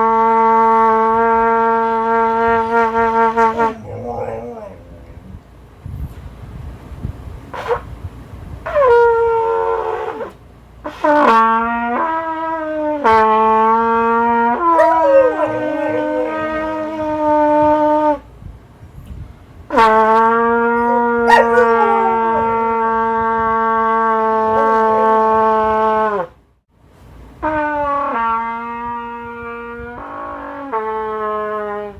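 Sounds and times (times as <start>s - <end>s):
trumpet long held notes: 0.0s - 4.7s, 10.9s - 18.2s, 19.7s - 26.3s, 27.4s - 31.9s
dog howling: 2.8s - 5.4s, 14.6s - 17.3s, 20.7s - 22.8s.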